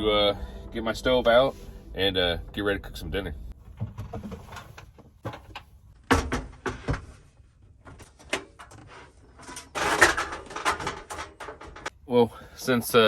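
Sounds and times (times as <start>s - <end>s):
camping gear clattering: 7.8s - 12.0s.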